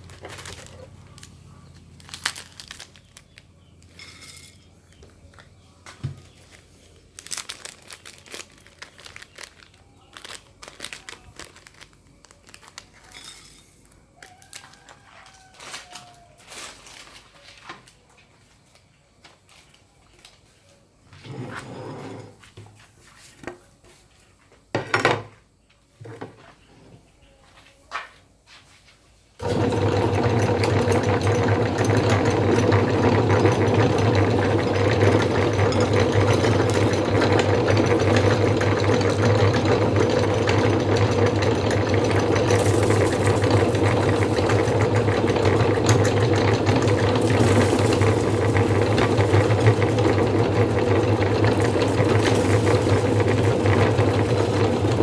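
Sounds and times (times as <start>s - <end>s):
electric meat grinder humming: 29.4s - 55.0s.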